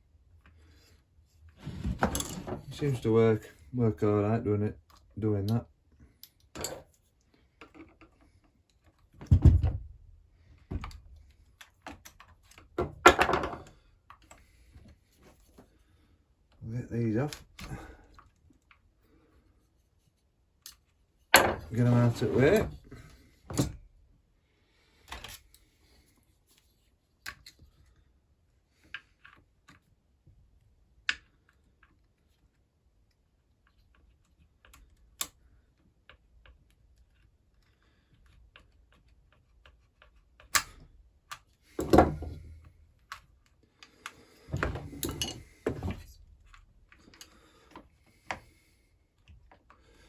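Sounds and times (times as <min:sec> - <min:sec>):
metal parts clunking and rattling: 0:01.7 - 0:03.0, 0:06.5 - 0:07.0, 0:11.6 - 0:13.8, 0:21.3 - 0:23.8, 0:41.7 - 0:42.6, 0:44.4 - 0:47.2.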